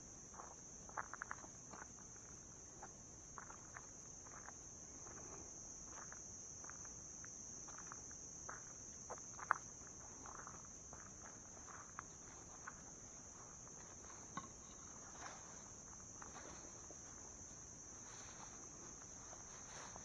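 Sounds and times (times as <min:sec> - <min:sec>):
high-pitched insect chorus: 0:00.1 - 0:20.0
crunching footsteps: 0:09.4 - 0:20.0.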